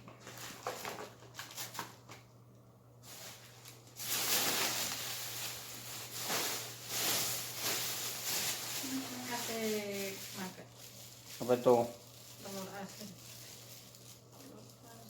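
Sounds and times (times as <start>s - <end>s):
plastic bag rustling and crinkling: 3.0s - 15.0s.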